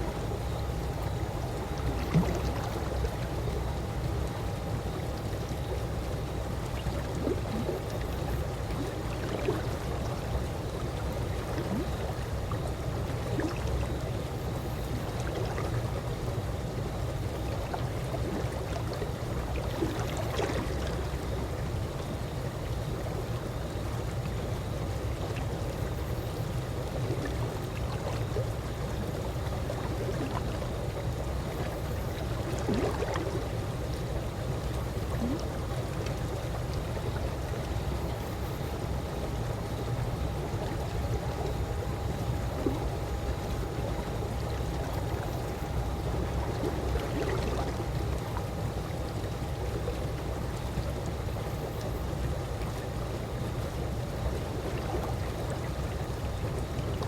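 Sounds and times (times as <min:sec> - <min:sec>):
pool water lapping: 0:00.0 - 0:57.0
faint small splashes: 0:01.1 - 0:03.4, 0:27.0 - 0:38.8.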